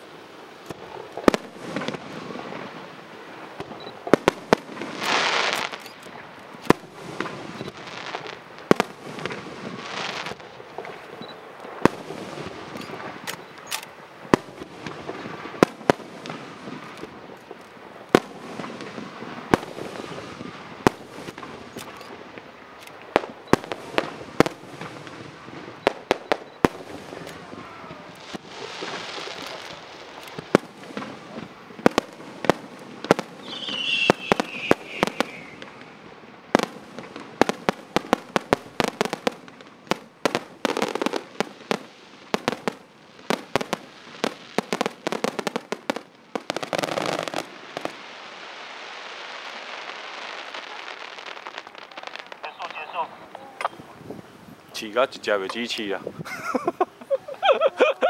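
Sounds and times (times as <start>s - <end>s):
fireworks crackle: 0.0s - 58.0s
fireworks shells bursting: 3.7s - 48.0s, 50.4s - 58.0s
falling firework whistle: 7.2s - 8.0s, 33.0s - 36.1s.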